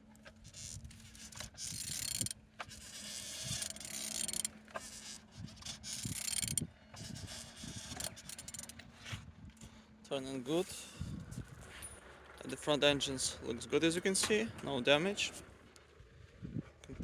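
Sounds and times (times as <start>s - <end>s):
mechanical clicks and scrapes: 0.2s - 9.1s
engine turned over by hand: 0.9s - 5.0s, 5.8s - 6.7s, 7.7s - 8.8s.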